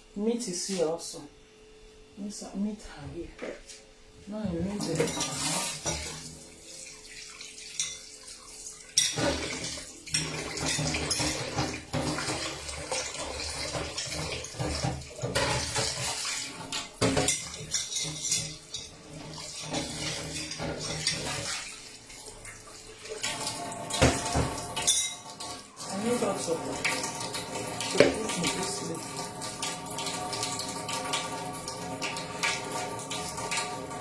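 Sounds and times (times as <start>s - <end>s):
tap water running into sink: 4.4s - 34.0s
dishes clattering: 4.7s - 6.3s, 8.9s - 21.7s, 23.2s - 25.6s.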